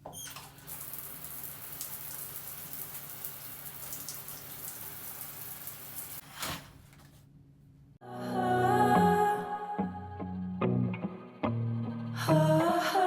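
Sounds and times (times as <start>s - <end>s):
falling water pattering: 0.0s - 6.2s.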